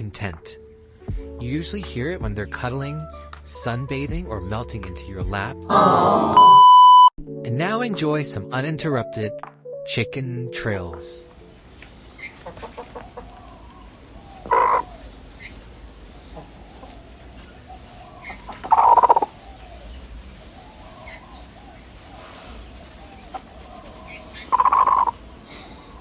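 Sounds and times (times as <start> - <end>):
hens murmuring softly: 11.3 - 26.0
hens trilling: 11.8 - 26.0.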